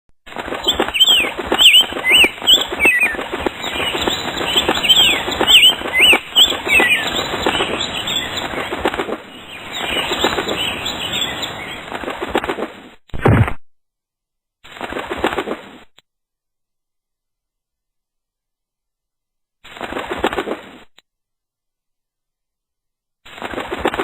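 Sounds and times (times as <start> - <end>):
bird wings flapping: 0.2 - 13.5, 14.7 - 15.9, 19.6 - 20.9, 23.3 - 24.0.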